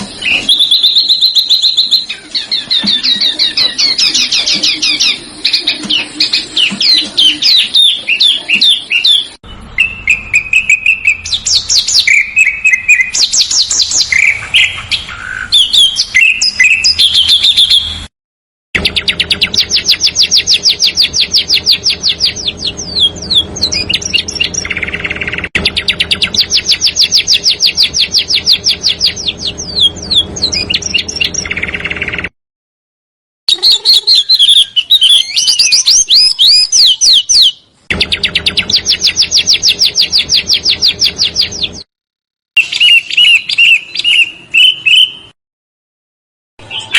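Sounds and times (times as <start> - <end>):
songbird whistles and chirps: 0.0 - 18.1, 18.8 - 32.3, 33.5 - 41.8, 42.6 - 45.4, 46.6 - 46.9
bird fast rolling trills: 18.8 - 32.3, 33.5 - 41.8.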